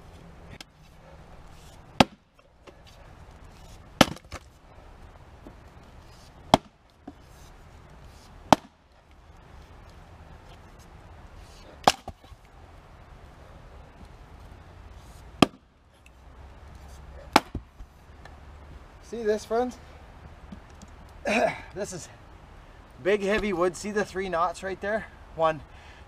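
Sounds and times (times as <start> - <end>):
axe strikes splitting wood: 2.0 - 2.3, 4.0 - 4.4, 6.5 - 6.8, 8.5 - 8.8, 11.8 - 12.3, 15.4 - 15.6, 17.3 - 17.7.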